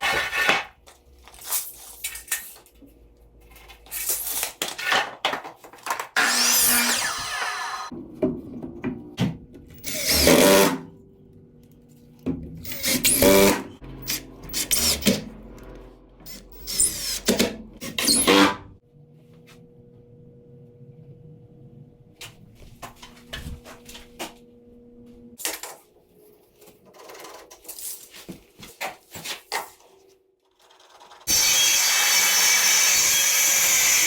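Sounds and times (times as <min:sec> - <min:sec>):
power drill motor whine: 0:06.2 - 0:07.9, 0:31.3 - 0:34.0.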